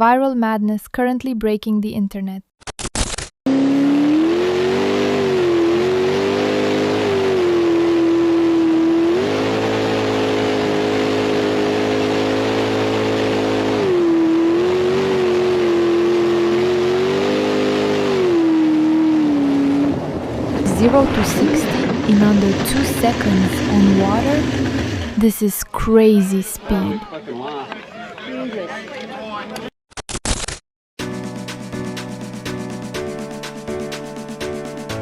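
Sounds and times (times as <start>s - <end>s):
engine revving at high revs: 3.5s - 25.2s.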